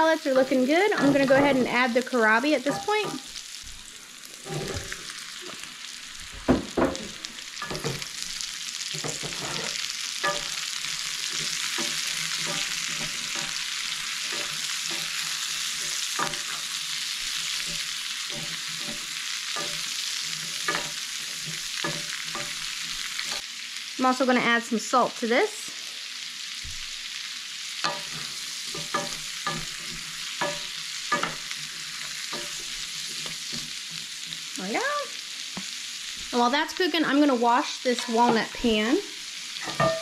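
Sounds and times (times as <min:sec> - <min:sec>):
food sizzling in a skillet: 0:00.0 - 0:40.0
wooden spoon scraping a pan: 0:00.4 - 0:05.8, 0:06.4 - 0:23.4, 0:27.8 - 0:34.7, 0:37.9 - 0:38.9.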